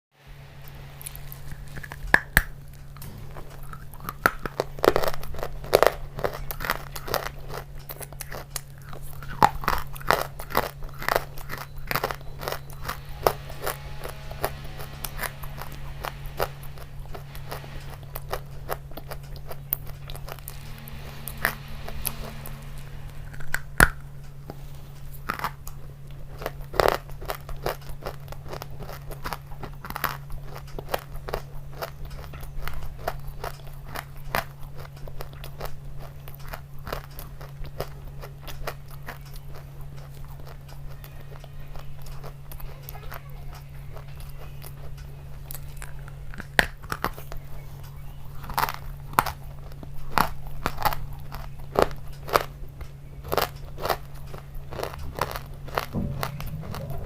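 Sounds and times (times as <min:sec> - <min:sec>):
steady low hum: 0:00.1 - 0:57.0
person chewing crunchy food: 0:00.7 - 0:57.0.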